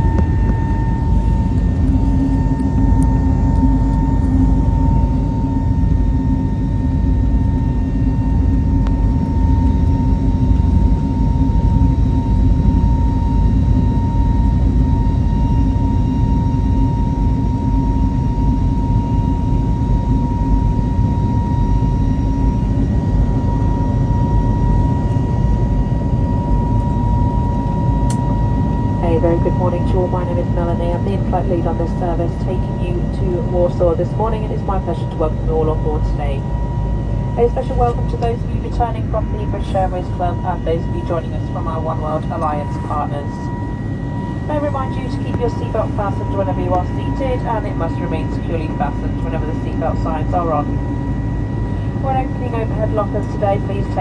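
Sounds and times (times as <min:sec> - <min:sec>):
high whine: 0:00.0 - 0:15.1, 0:21.1 - 0:54.0
jet engine and airflow roar: 0:00.0 - 0:54.0.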